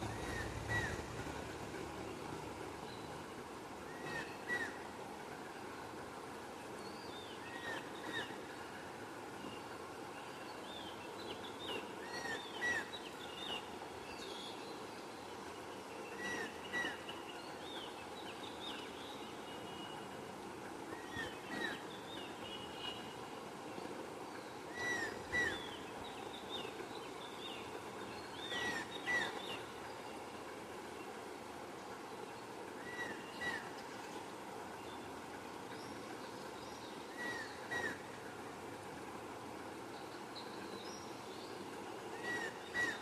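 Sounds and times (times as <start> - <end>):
steady background noise: 0.0 - 43.0.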